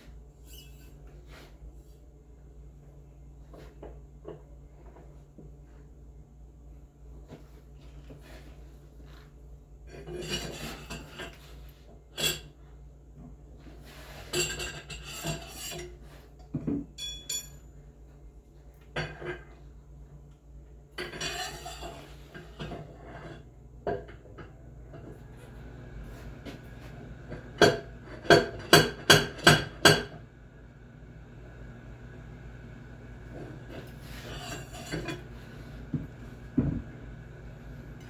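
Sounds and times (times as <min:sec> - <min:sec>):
metal tools clinking and scraping: 0:00.4 - 0:01.1, 0:17.0 - 0:17.8, 0:21.0 - 0:23.4, 0:33.7 - 0:35.3.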